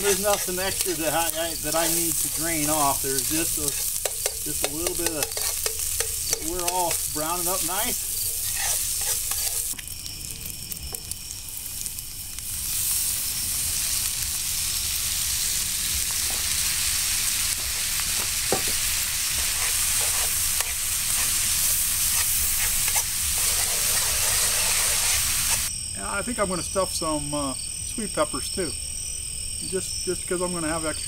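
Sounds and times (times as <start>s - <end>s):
utensil scraping and clicking: 0.0s - 9.8s, 19.4s - 25.6s
sausage sizzling in a frying pan: 0.0s - 27.2s.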